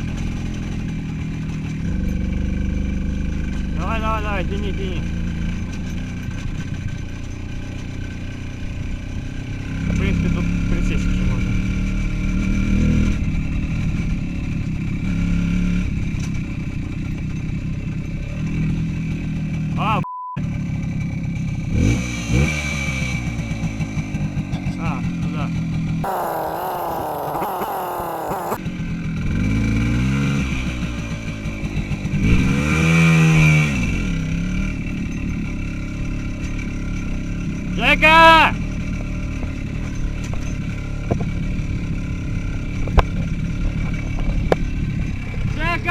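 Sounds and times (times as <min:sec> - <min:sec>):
small motorcycle engine running: 0:26.0 - 0:28.6.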